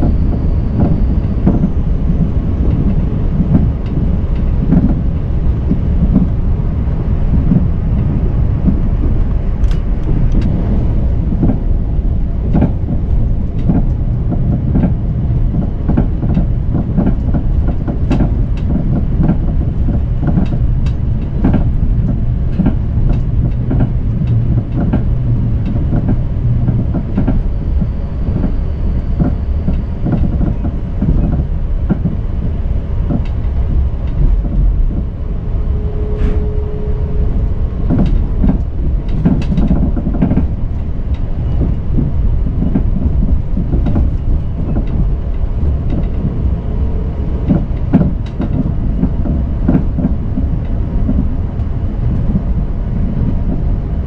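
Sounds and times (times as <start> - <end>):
wheels clicking on rails: 0.0 - 36.5, 37.3 - 54.0
train running low rumble: 0.0 - 54.0
steady hum: 33.6 - 54.0.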